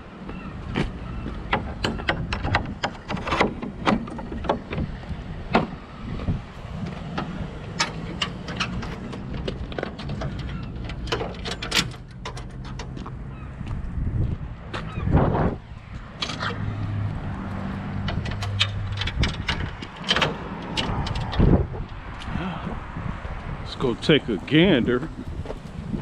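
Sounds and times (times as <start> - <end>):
sharp knocks and clatters: 1.4 - 4.9, 17.7 - 22.0.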